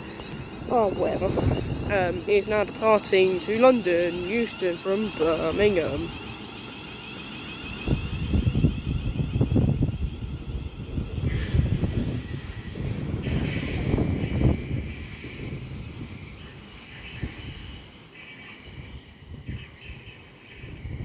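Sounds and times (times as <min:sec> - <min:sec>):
train rail rumble: 0:00.0 - 0:21.0
hiss: 0:11.2 - 0:21.0.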